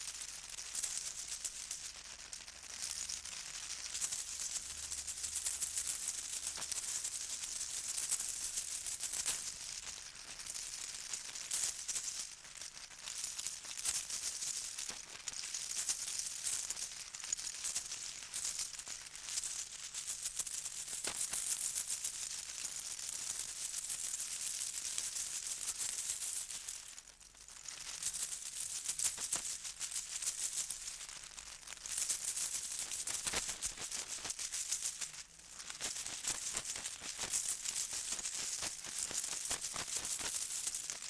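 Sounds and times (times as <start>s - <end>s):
shaken rattle: 27.8s - 31.1s, 31.8s - 41.0s.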